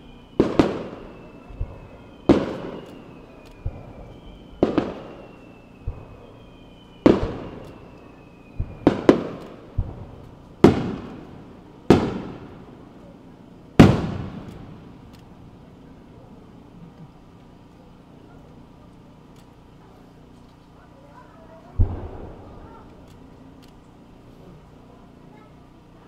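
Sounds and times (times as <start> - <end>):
faint falling whistle: 0.0 - 9.8
firework mortar thumps: 0.0 - 13.1, 13.7 - 16.0, 21.6 - 24.8
firework bursts with echoes: 0.0 - 26.0.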